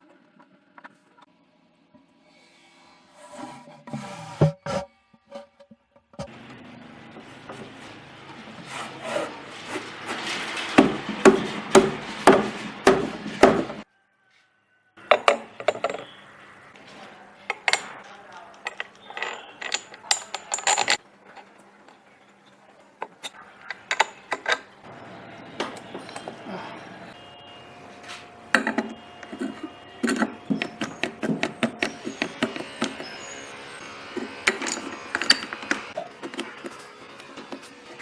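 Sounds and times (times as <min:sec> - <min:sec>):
tools and parts clattering: 0:08.9 - 0:13.8, 0:15.0 - 0:16.2, 0:17.0 - 0:24.8, 0:25.6 - 0:26.6, 0:28.2 - 0:38.0
sharp knocks: 0:10.8 - 0:13.8.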